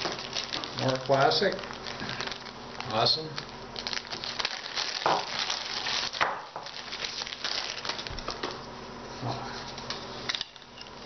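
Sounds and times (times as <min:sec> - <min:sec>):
packaging crinkling and rustling: 0:00.0 - 0:08.7.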